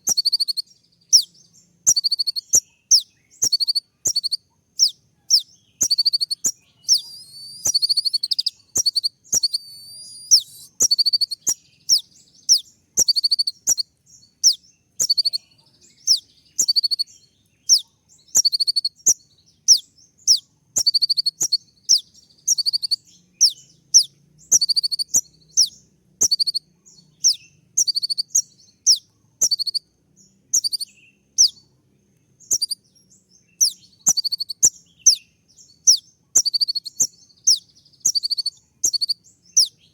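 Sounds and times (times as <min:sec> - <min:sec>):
sunbird sharp high chirps: 0:00.0 - 0:39.9
bird warbling trill: 0:03.4 - 0:17.1.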